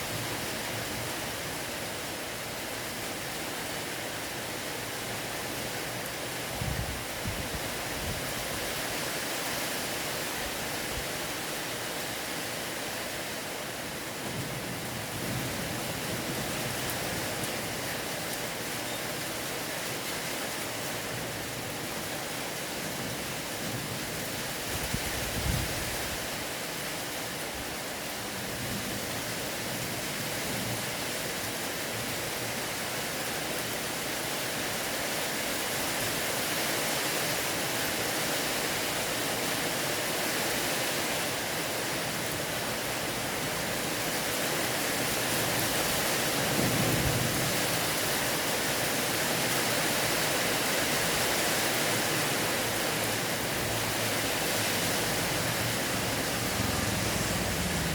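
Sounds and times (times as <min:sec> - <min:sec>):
steady rain: 0:00.0 - 0:57.9.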